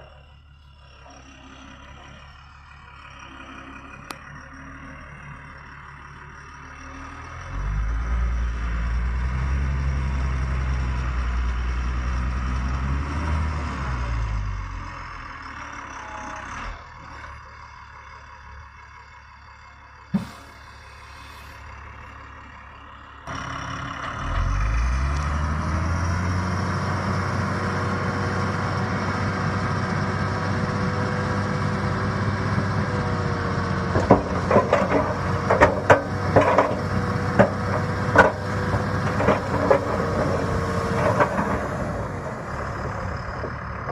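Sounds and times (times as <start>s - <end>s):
diesel engine running and revving: 0.0s - 43.9s
metal clanks and knocks: 20.2s - 20.8s, 33.9s - 42.0s.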